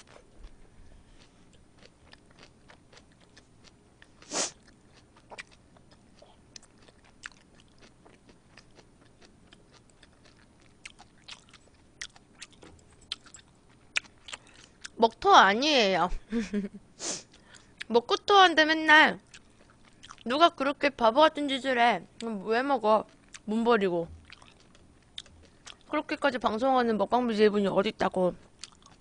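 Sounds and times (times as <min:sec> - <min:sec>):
chewing with wet mouth clicks: 0:01.2 - 0:15.0, 0:19.3 - 0:20.2, 0:24.2 - 0:25.9, 0:28.6 - 0:29.0.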